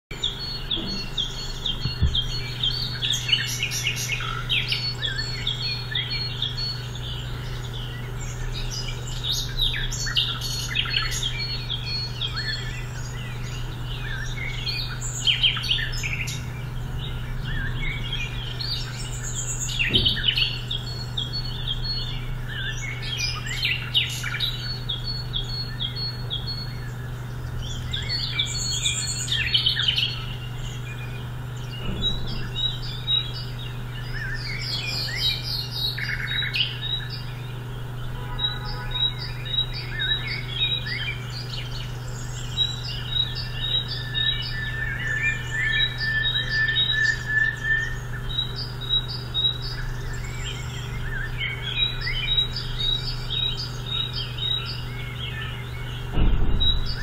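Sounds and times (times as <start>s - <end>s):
birds chirping and calling: 0.1s - 57.0s
high bird trill: 0.1s - 57.0s
steady low hum: 0.1s - 57.0s.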